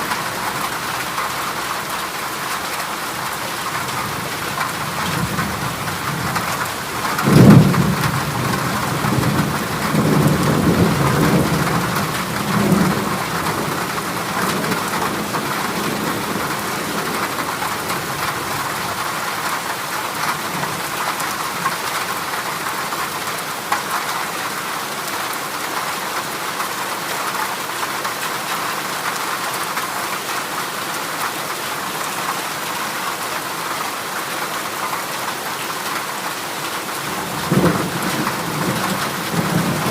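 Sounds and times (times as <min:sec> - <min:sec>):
heavy rain on metal roof: 0:00.0 - 0:39.9
thunderclap rumbling: 0:04.8 - 0:19.0, 0:37.0 - 0:39.9.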